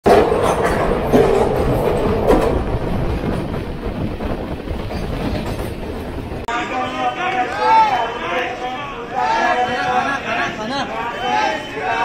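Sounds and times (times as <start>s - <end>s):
moving train running noise: 0.0s - 6.5s.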